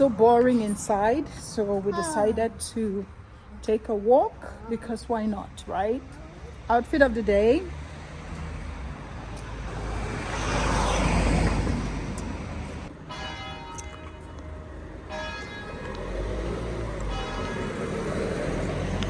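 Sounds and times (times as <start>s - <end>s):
vehicle passing: 0.0s - 13.2s, 13.8s - 19.0s
street traffic: 0.0s - 19.0s
bells ringing: 13.0s - 14.4s, 15.1s - 16.0s, 17.1s - 17.8s.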